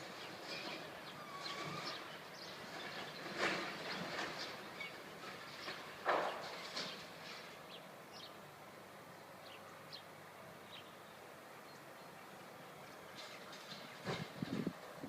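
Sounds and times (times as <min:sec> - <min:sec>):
faint background noise: 0:00.0 - 0:15.0.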